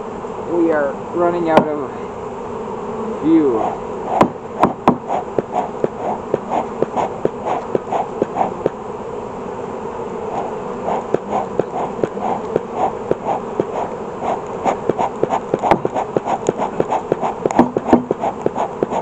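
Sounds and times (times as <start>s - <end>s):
honeybees buzzing: 0.0s - 19.0s
bellows clicks: 3.6s - 8.8s, 10.4s - 19.0s
smoker bellows puffing: 3.6s - 8.8s, 10.2s - 19.0s.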